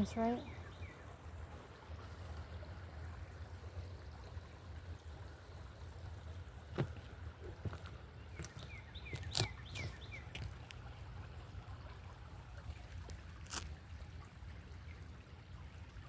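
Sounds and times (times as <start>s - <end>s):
crackles of steps in dry leaves: 6.8s - 10.9s
bird chirping: 8.2s - 10.5s.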